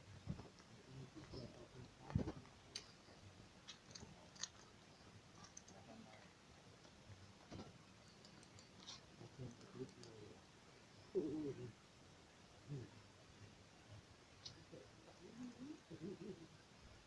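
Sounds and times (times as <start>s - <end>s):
faint clicks and crackles: 0.1s - 10.4s.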